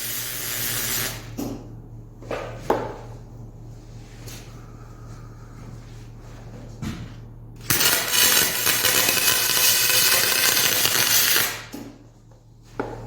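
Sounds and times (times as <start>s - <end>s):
welding arc hissing and crackling: 0.0s - 1.4s, 7.6s - 11.7s.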